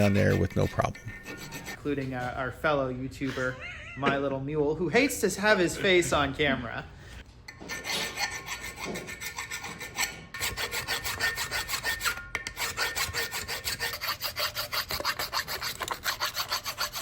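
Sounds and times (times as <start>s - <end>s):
hand file rasping on metal: 0.0s - 2.0s, 7.5s - 17.0s.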